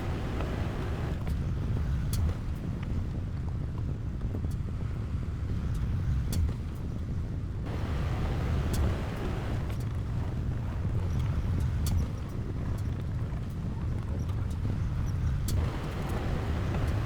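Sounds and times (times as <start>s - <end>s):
heavy machinery diesel engine rumble: 7.7s - 10.9s.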